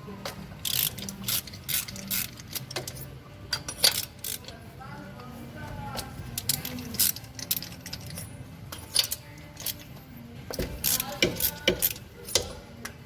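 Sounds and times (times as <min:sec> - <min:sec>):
metal hand tools clinking: 0:00.7 - 0:04.6, 0:06.0 - 0:09.9, 0:10.5 - 0:12.6.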